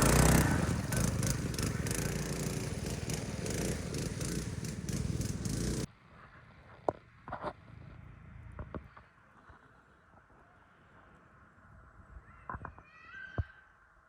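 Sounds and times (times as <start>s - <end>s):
small engine running: 0.0s - 5.9s.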